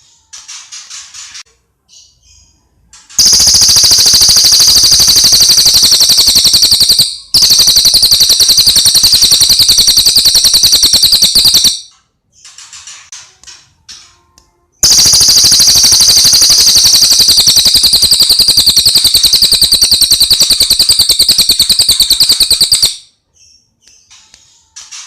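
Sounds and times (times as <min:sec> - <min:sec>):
rapid high-pitched bird trill: 0:03.2 - 0:11.9, 0:14.8 - 0:23.1.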